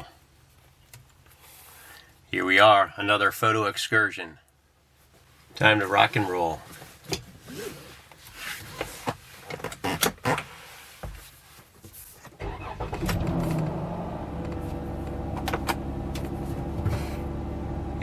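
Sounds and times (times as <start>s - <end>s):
car engine starting and idling: 12.4s - 18.0s.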